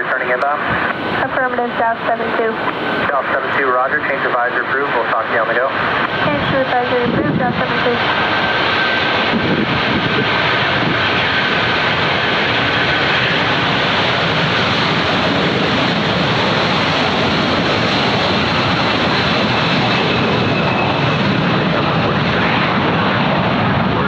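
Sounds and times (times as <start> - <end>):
jet engines running: 0.0 - 24.0.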